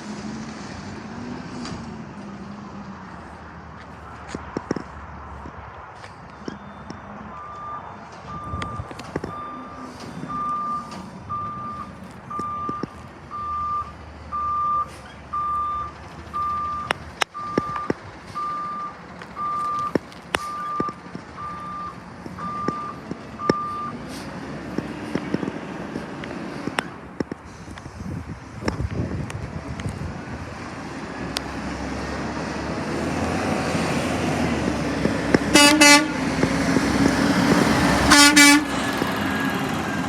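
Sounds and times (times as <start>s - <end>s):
truck engine running: 0.0s - 40.0s
reversing alarm beeping: 6.3s - 24.0s.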